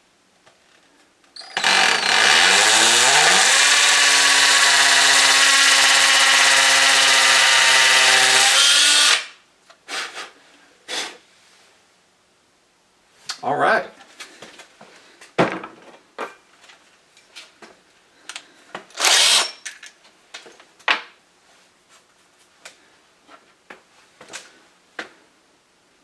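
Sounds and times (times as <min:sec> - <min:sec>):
cordless drill burst: 0:01.4 - 0:09.3, 0:19.0 - 0:19.5.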